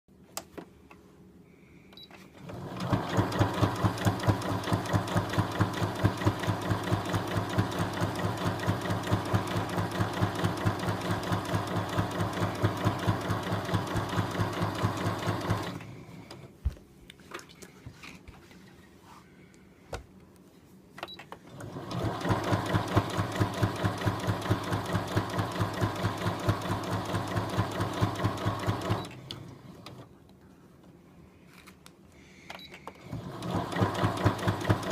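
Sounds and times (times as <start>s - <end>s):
sewing machine stitching: 2.4s - 16.4s, 21.4s - 30.1s, 33.0s - 34.9s
sewing machine clicks: 21.4s - 30.0s.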